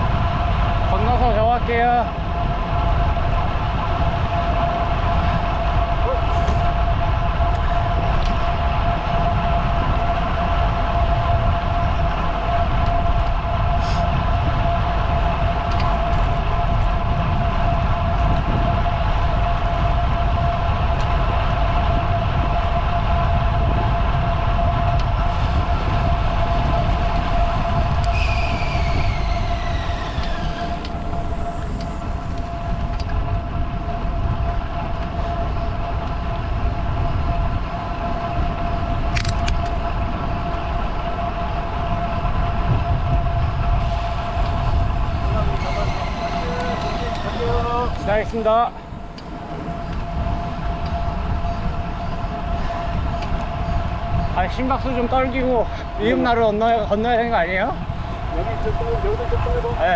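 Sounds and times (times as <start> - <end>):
steady high hum: 0.0 - 36.0, 39.7 - 59.9
bicycle road noise: 0.0 - 59.9
wind rumble on microphone: 0.0 - 59.9
whine falling in pitch: 25.6 - 33.5, 43.9 - 52.6, 57.2 - 59.9.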